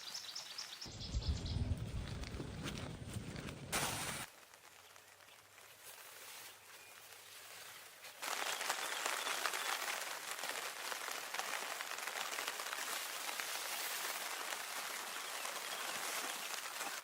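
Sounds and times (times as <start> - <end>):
rain falling: 8.2 - 17.0.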